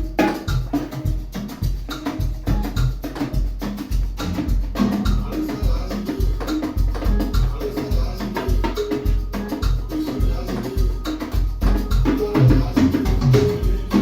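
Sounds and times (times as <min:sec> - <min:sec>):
conga drums played by hand: 0:00.0 - 0:14.0.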